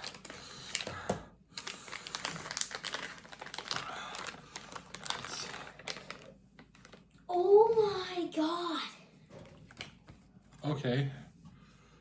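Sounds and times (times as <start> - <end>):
plastic packaging crinkling: 0.0 - 1.0, 1.6 - 7.2.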